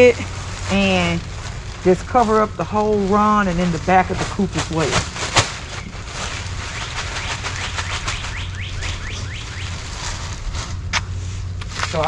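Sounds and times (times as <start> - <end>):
rake scraping mulch: 0.0 - 12.0
bird chirping: 6.6 - 9.8.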